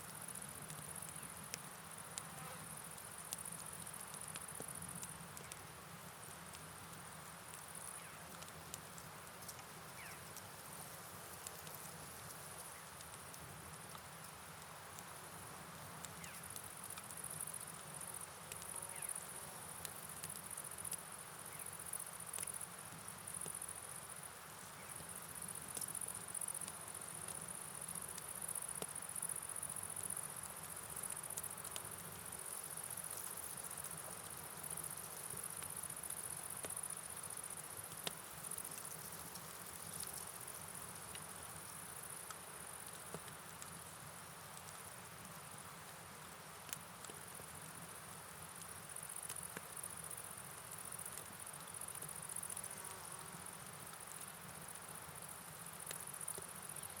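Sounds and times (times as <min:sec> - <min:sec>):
rain hiss: 0:00.0 - 0:57.0
crickets chirping: 0:09.8 - 0:13.9, 0:16.1 - 0:57.0.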